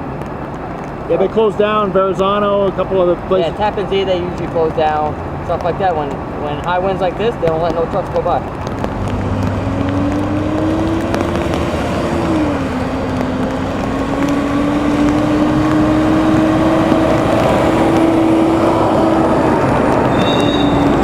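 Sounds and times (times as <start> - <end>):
road traffic noise: 0.0 - 21.0
engine hum changing pitch: 8.4 - 21.0.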